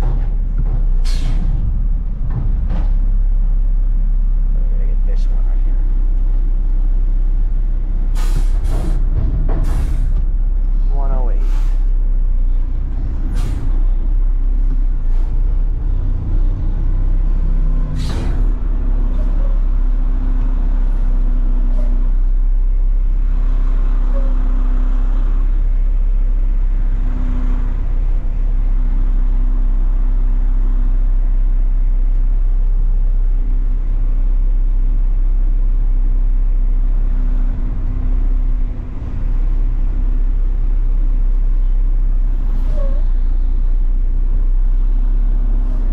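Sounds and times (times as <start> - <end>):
diesel engine droning: 0.0 - 45.9
short sharp air hisses: 8.2 - 8.9, 11.4 - 11.9.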